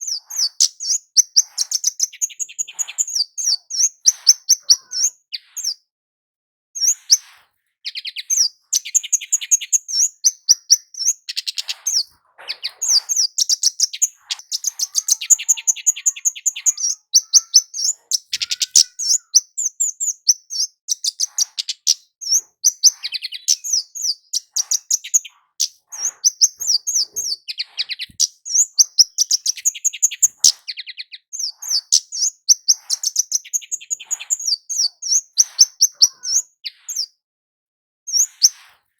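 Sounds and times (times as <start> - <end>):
songbird chirping rapidly: 0.0 - 5.8, 6.8 - 37.2, 38.1 - 38.6.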